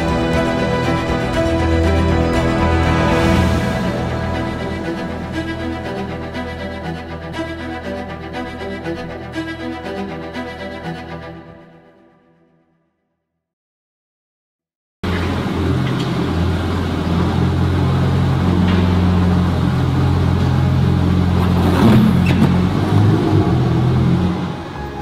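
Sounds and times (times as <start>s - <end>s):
vehicle engine humming: 15.1s - 25.0s.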